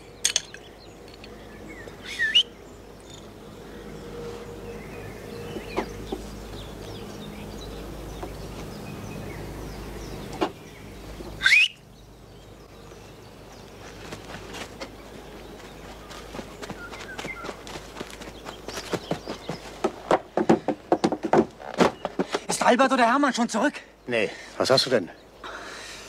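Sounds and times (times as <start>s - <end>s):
birds chirping: 0.0s - 26.0s
loud rising whistle: 2.0s - 2.5s, 11.4s - 11.8s.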